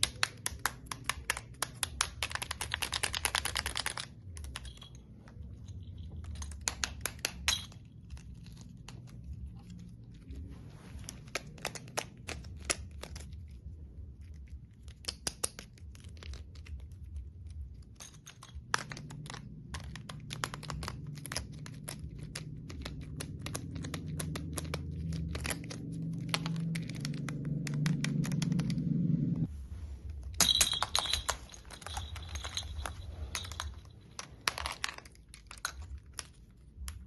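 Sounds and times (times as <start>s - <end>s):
toys clicking and tapping: 0.0s - 10.0s, 14.8s - 28.8s
low hum: 16.2s - 37.0s.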